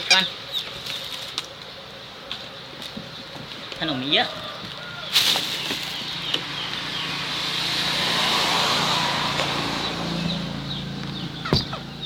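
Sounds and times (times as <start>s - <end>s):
vehicle passing by: 5.2s - 12.0s
low engine hum: 5.4s - 12.0s.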